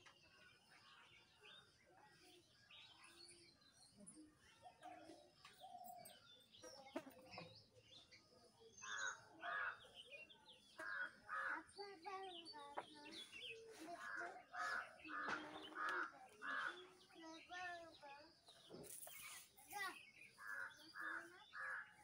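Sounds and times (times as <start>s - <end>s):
loud bird calls: 8.6s - 22.0s.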